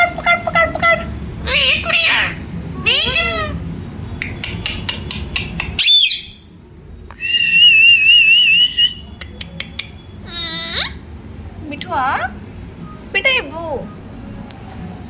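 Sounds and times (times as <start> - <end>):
parrot squawk: 0.0 - 3.6, 4.2 - 6.4, 9.4 - 11.1
parrot wavering whistle: 0.0 - 3.6, 4.2 - 6.4, 7.2 - 11.0
parrot clicks: 4.2 - 5.8.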